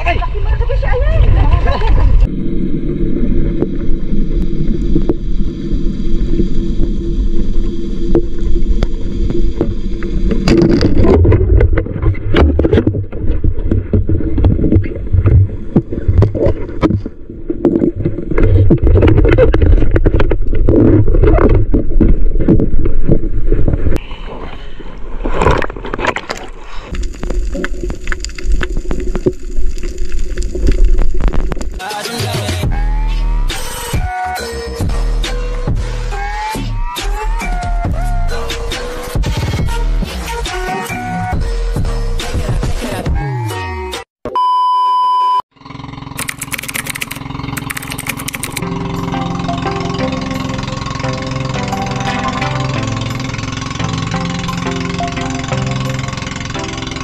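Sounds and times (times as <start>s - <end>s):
boat motor drone underwater: 1.2s - 31.8s, 45.6s - 57.0s
dense clicking and crackling: 25.2s - 31.8s, 46.2s - 48.6s.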